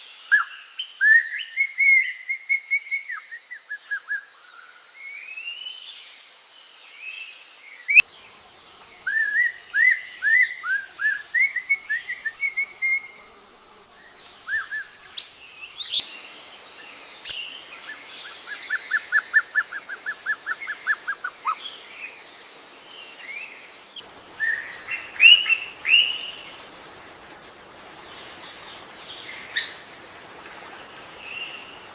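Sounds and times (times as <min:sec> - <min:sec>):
high-pitched background hiss: 0:00.0 - 0:31.9
bird singing chirps and whistles: 0:09.0 - 0:13.3, 0:16.8 - 0:22.3.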